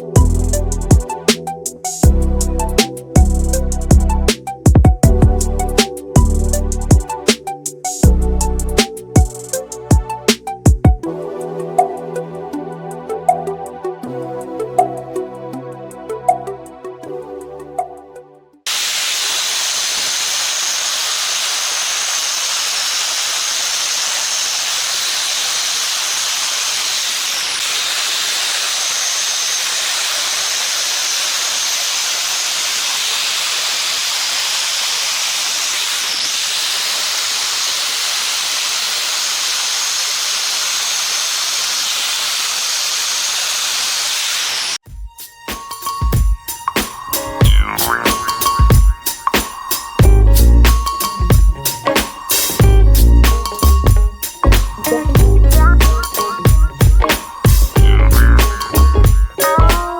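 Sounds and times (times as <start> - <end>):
loud pressurized hiss: 18.7 - 59.9.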